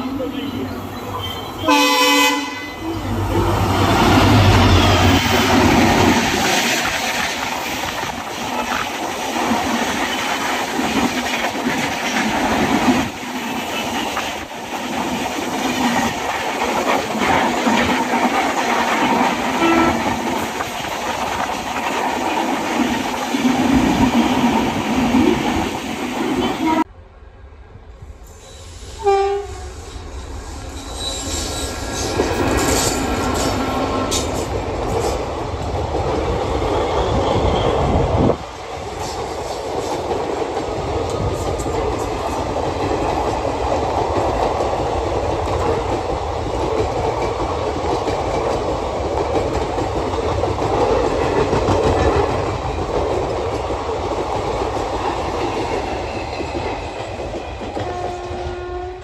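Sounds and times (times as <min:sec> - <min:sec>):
train wheels rumbling: 0:00.0 - 0:59.0
locomotive horn blast: 0:01.3 - 0:02.9, 0:19.6 - 0:20.0, 0:26.4 - 0:26.9, 0:28.5 - 0:29.9, 0:57.8 - 0:59.0
clickety-clack over rail joints: 0:03.9 - 0:26.8, 0:31.9 - 0:37.1, 0:38.7 - 0:59.0.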